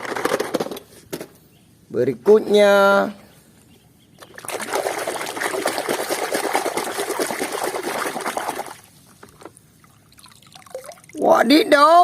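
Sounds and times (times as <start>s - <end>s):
water trickling and splashing: 4.2s - 11.5s.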